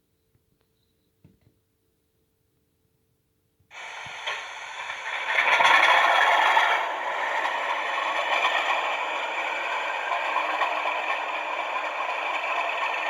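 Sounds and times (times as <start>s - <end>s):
model train diesel engine sound: 3.7s - 13.0s.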